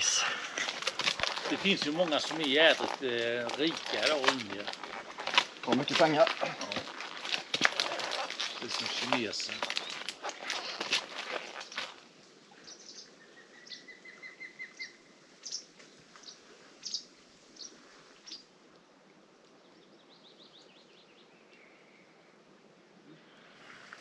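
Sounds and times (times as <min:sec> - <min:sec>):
birds chirping faintly: 0:00.0 - 0:12.0.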